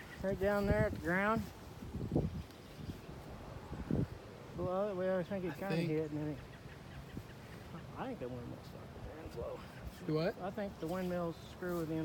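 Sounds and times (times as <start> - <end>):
wind buffeting microphone: 0.0 - 5.2
low wind rumble: 0.0 - 10.0.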